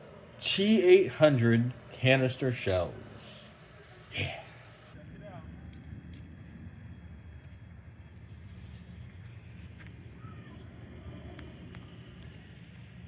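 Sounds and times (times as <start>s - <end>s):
thin high-pitched whine: 0.0s - 13.0s
low steady rumble: 4.8s - 13.0s.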